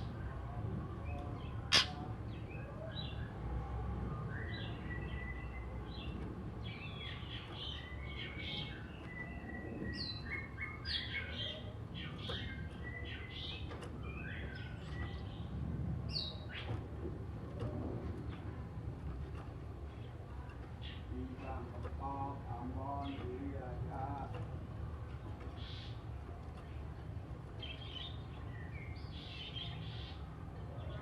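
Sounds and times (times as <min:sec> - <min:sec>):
bird singing whistles and chirps: 0:04.3 - 0:05.7, 0:07.8 - 0:13.4.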